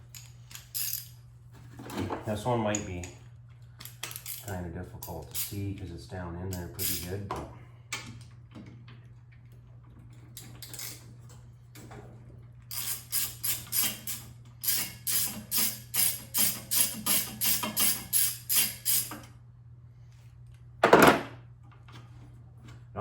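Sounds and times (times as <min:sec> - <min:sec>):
recoil starter ratcheting: 0:12.7 - 0:19.2.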